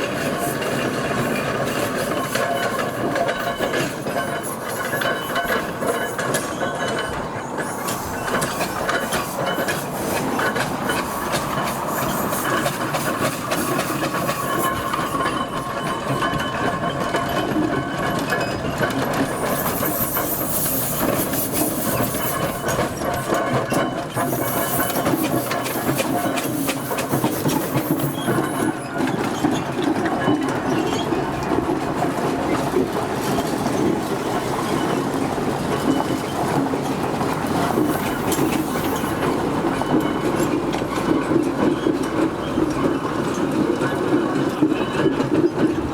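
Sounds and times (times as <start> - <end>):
steam traction engine clatter: 0.0 - 45.9
steam hiss: 7.6 - 15.3, 19.3 - 23.4, 24.2 - 28.7, 37.4 - 39.8.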